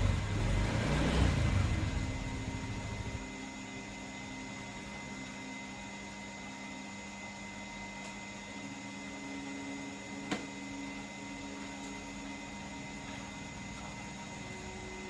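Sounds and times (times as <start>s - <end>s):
mechanical hum with tones: 0.0s - 15.0s.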